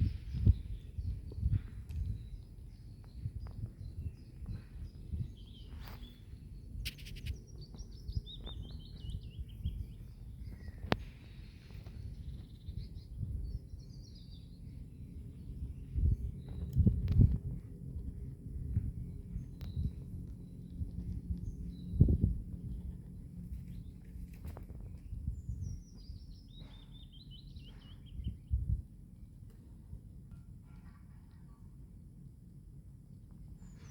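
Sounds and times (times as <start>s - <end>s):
songbird chirping: 0.0s - 17.3s
low rumble: 0.0s - 26.2s
sharp clicks: 6.8s - 7.4s.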